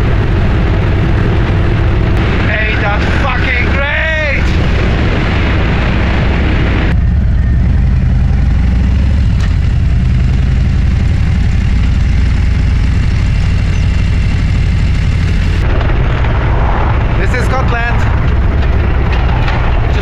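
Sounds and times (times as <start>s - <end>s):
wind on microphone: 0.0s - 10.0s
motorcycle engine rumbling: 0.0s - 20.0s.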